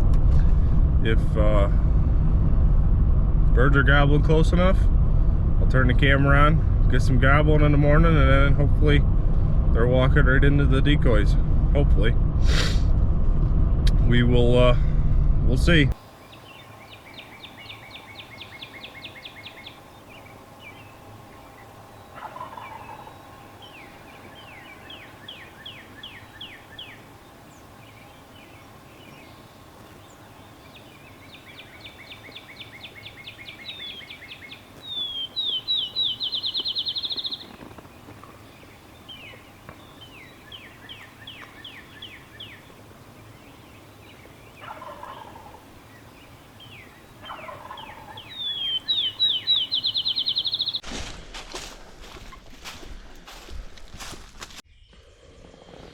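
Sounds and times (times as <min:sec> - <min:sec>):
songbird trills: 0:16.0 - 0:50.8
distant turkey gobbling: 0:16.2 - 0:50.8.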